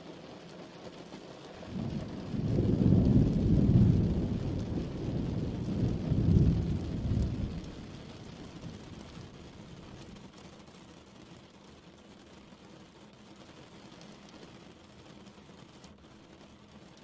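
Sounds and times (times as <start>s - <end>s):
steady rain: 0.0s - 17.0s
thunder rumble: 1.6s - 10.3s.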